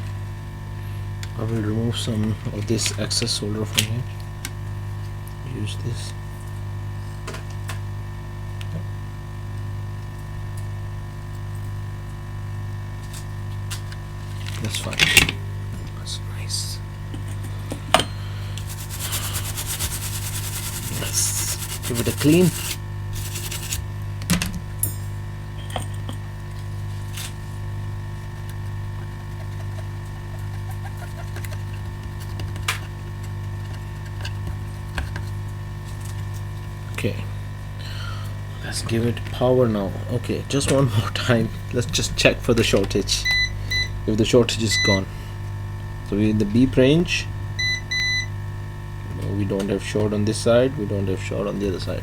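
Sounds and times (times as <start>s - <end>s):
low equipment hum: 0.0s - 52.0s.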